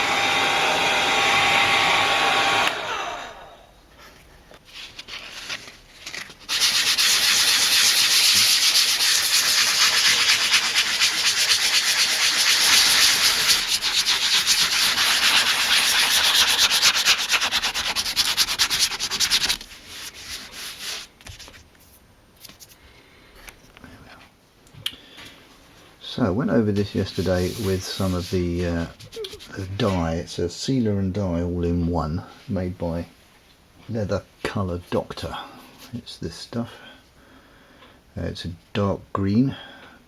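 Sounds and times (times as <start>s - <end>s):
sandpaper scratching on leather: 6.5s - 21.1s, 26.9s - 29.7s.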